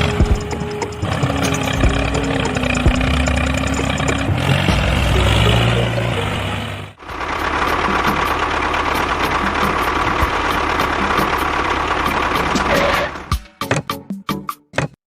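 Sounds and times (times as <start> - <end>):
engine running: 0.0 - 13.4
faint regular ticking: 0.2 - 5.4.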